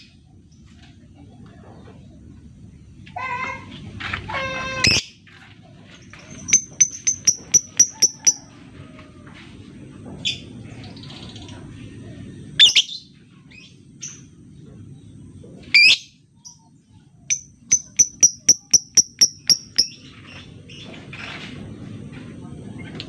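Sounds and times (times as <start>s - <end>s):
lovebird high chirps: 6.4s - 8.4s, 12.6s - 13.1s, 17.3s - 20.2s.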